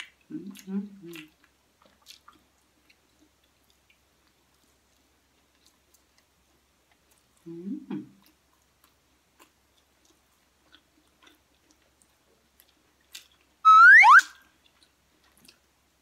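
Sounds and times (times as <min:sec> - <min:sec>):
chewing clicks: 0:08.2 - 0:13.5
loud rising whistle: 0:13.7 - 0:14.4.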